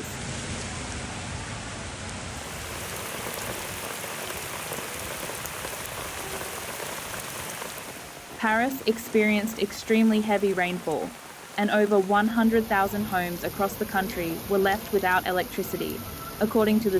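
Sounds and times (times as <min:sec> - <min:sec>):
heavy rain pouring: 0:02.3 - 0:14.5.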